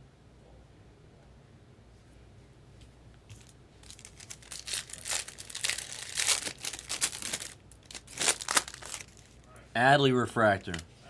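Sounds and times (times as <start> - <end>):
card packaging crinkling and tearing: 3.3 - 9.5, 10.5 - 10.8.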